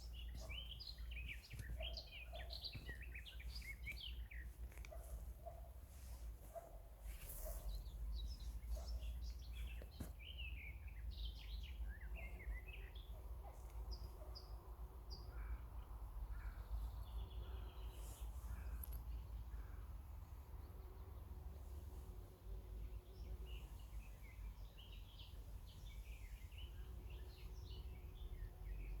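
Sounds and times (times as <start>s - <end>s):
birds chirping and singing: 0.0s - 5.6s.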